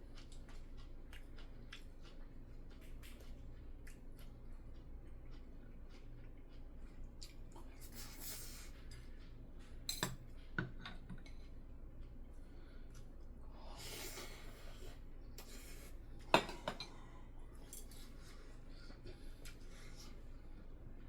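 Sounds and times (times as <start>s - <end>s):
cutlery clicking against dishes: 9.9s - 11.4s.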